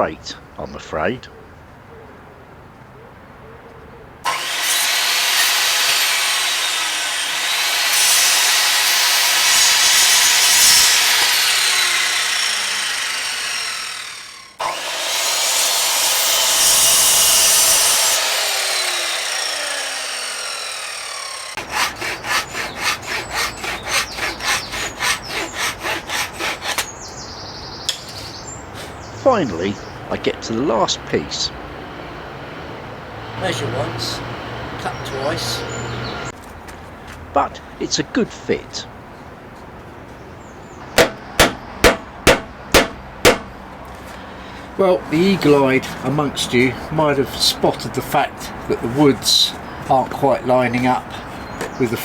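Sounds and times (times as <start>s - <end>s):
hand saw strokes through board: 4.3s - 26.9s, 41.0s - 52.0s
power saw cutting wood: 4.3s - 26.9s, 33.2s - 36.3s, 41.0s - 52.0s.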